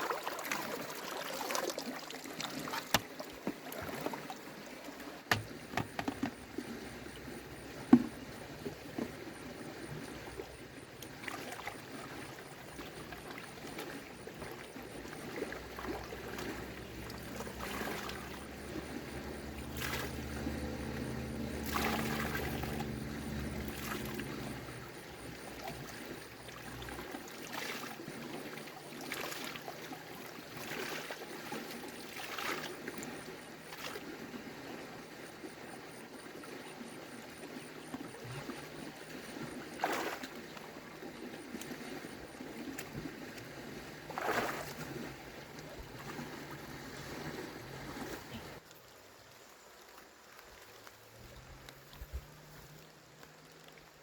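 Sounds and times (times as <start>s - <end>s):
water splashing and trickling: 0.0s - 54.0s
low steady hum: 14.4s - 27.1s.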